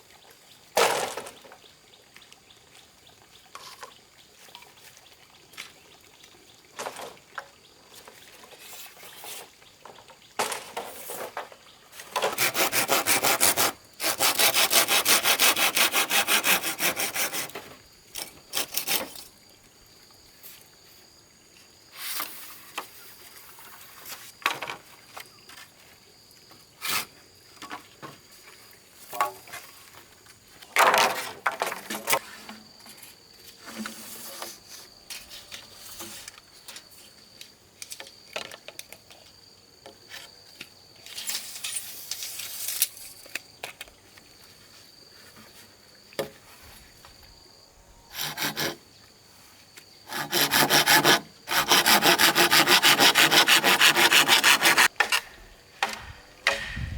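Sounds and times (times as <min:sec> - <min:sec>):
sawing bamboo: 0:12.1 - 0:19.3, 0:48.1 - 0:48.8, 0:50.0 - 0:56.7
knocks on bamboo: 0:55.0 - 0:56.9.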